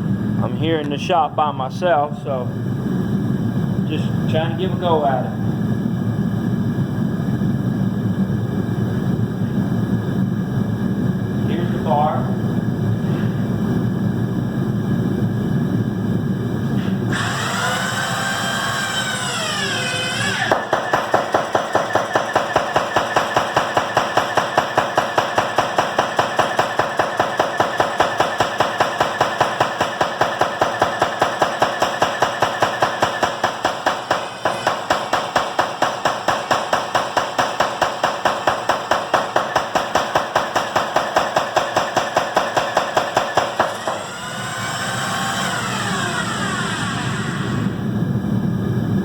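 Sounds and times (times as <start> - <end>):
drill whining: 17.1 - 21.1, 43.6 - 47.8
power hammer pounding metal: 17.1 - 46.2.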